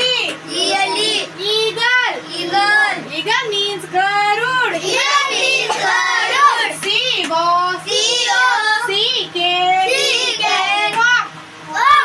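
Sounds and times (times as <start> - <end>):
steady low hum: 0.0 - 12.0
children chanting: 0.5 - 1.3, 4.8 - 6.9, 7.9 - 9.0, 9.9 - 12.0.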